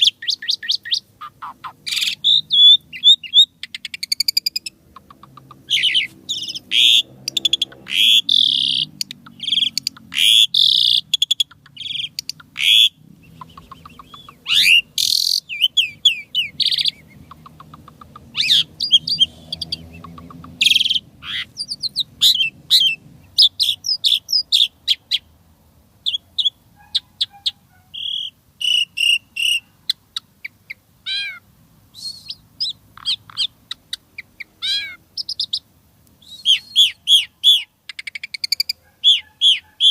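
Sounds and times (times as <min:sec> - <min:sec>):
starling singing chirps and whistles: 0:00.0 - 0:25.3, 0:26.0 - 0:39.9.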